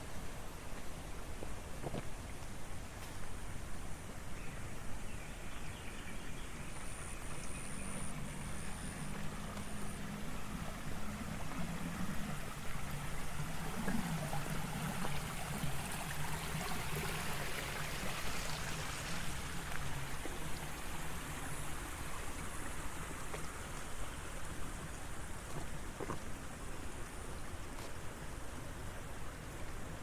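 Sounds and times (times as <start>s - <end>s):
water running in channel: 0.0s - 30.0s
vehicle engine hum: 6.1s - 27.6s.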